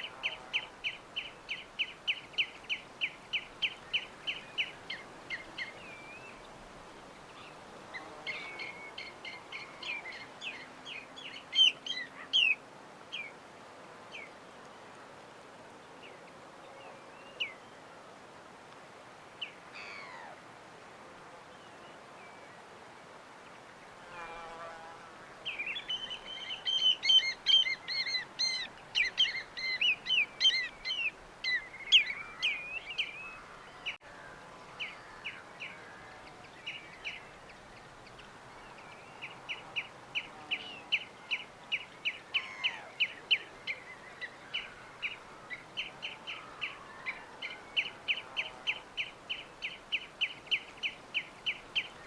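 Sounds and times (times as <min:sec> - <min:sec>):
small birds chirping: 0:00.0 - 0:13.4, 0:25.3 - 0:52.0
faint background hiss: 0:00.0 - 0:52.0.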